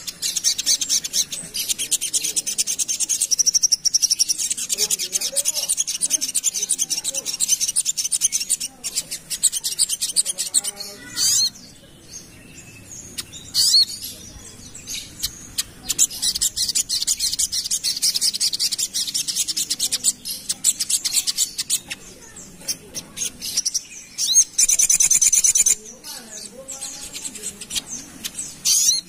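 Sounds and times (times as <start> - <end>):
bird chattering high notes: 0.0 - 11.7.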